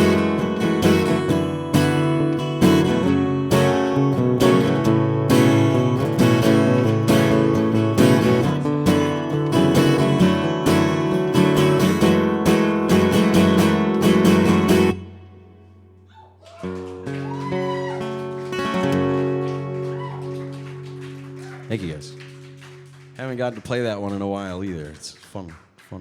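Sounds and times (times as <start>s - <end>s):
acoustic guitar strumming: 0.0s - 16.0s, 16.6s - 23.4s.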